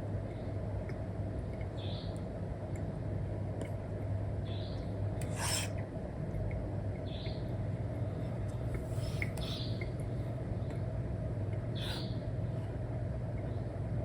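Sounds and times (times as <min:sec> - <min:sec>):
steady low hum: 0:00.0 - 0:14.0
stylus scratching on screen: 0:05.2 - 0:05.8.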